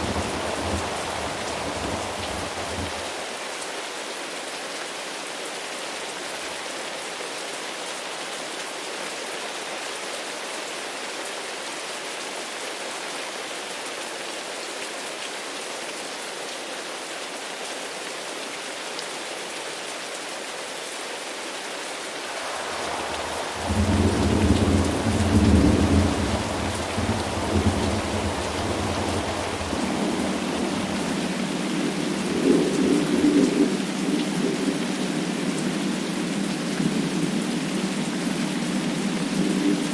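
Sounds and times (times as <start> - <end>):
deep thunder rumble: 0.0 - 3.1, 22.3 - 33.7
steady rain: 0.0 - 39.9.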